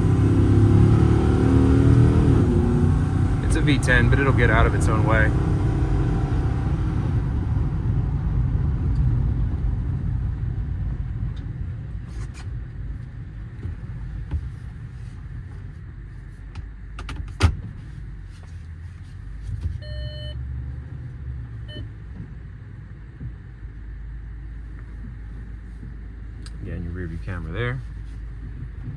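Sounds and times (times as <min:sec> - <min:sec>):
truck engine and road noise: 0:00.0 - 0:28.9
short chime-like beep: 0:19.8 - 0:20.4.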